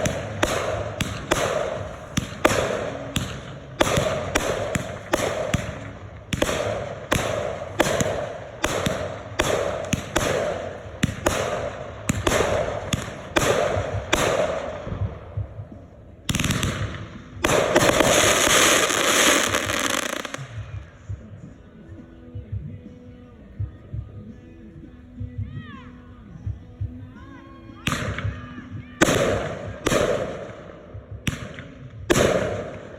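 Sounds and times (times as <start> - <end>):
fireworks bangs: 0.0 - 21.3
fireworks crackling burst: 0.0 - 21.5.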